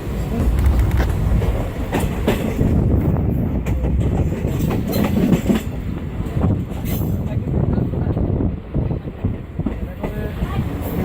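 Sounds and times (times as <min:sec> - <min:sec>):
train wheels clattering over rail joints: 0:00.0 - 0:07.4
train low rumble: 0:00.0 - 0:11.0.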